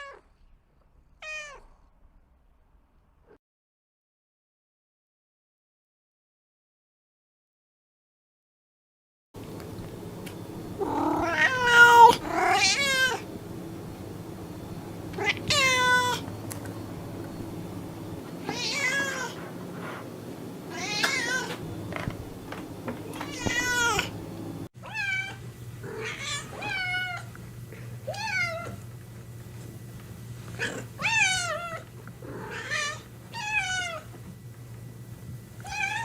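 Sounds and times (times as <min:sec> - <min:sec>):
cat meowing: 0:00.0 - 0:00.2, 0:01.2 - 0:01.7, 0:10.8 - 0:13.2, 0:15.2 - 0:16.2, 0:18.4 - 0:19.4, 0:20.7 - 0:21.6, 0:23.1 - 0:24.1, 0:24.8 - 0:27.3, 0:28.1 - 0:28.8, 0:35.6 - 0:36.0
steady low hum: 0:09.4 - 0:24.7.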